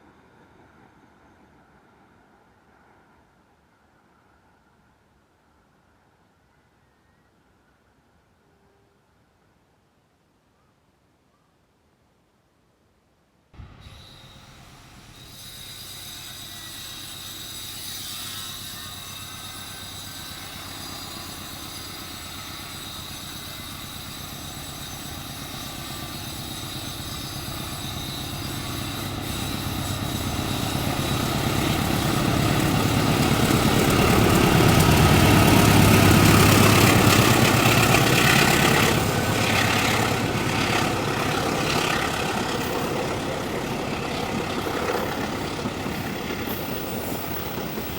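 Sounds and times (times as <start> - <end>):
diesel locomotive engine drone: 13.6 - 47.9
train wheels rumbling on rails: 13.6 - 47.9.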